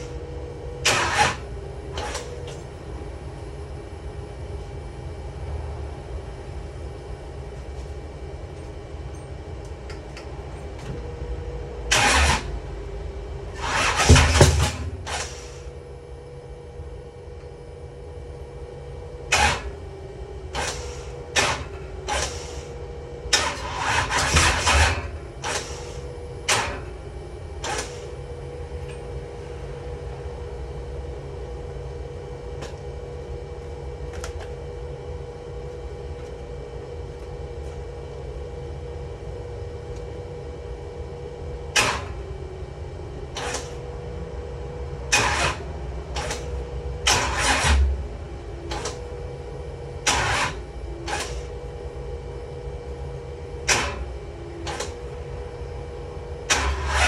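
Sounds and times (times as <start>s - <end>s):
steady low hum: 0.0s - 57.0s
sharp clicks and clunks: 2.0s - 2.7s, 27.6s - 28.1s, 34.1s - 34.6s, 45.1s - 48.1s, 48.7s - 49.1s, 54.6s - 55.1s.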